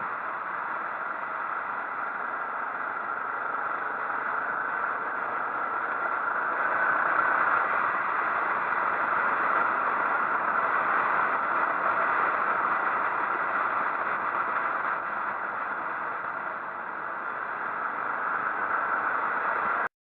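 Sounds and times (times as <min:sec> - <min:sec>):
motorcycle road noise: 0:00.0 - 0:19.8
rushing wind: 0:00.0 - 0:19.9.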